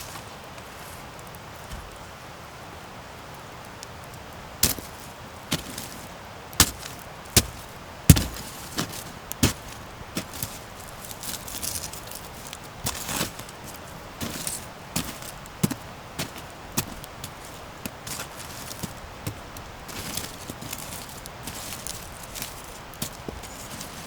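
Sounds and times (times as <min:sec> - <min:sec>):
campfire hissing: 0:00.0 - 0:24.0
fire pops and snaps: 0:04.6 - 0:24.0.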